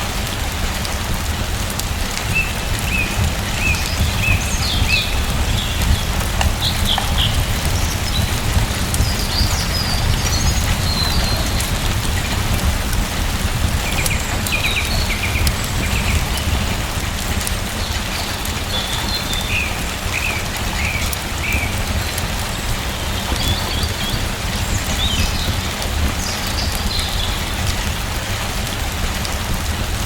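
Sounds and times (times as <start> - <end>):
rain pattering: 0.0 - 30.0
deep low rumble: 2.6 - 14.3.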